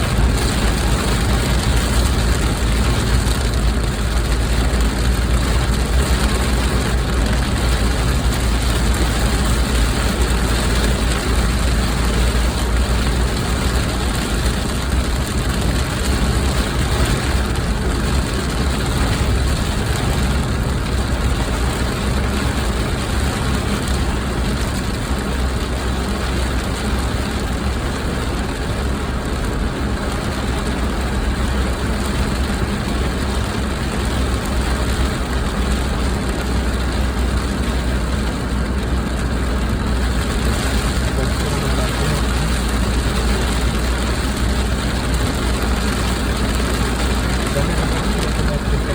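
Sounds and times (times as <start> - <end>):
car cabin rumble: 36.9 - 48.9.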